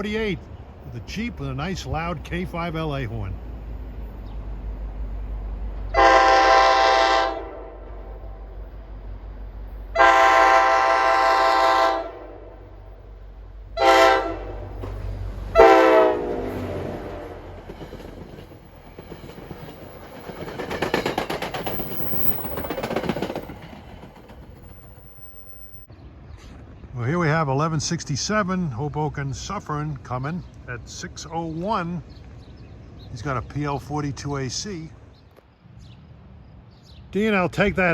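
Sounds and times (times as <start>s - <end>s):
diesel engine rumble: 0.0s - 7.0s, 7.7s - 20.3s
locomotive air horn blasts: 5.9s - 8.5s, 9.9s - 12.9s, 13.8s - 17.6s
train wheels clattering: 14.5s - 25.9s.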